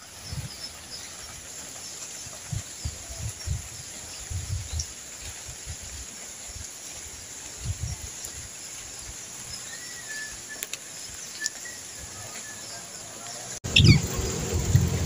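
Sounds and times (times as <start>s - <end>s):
faint bird calls: 9.7s - 14.2s
high chirps: 13.6s - 14.2s
low rumbling noise: 13.6s - 15.0s.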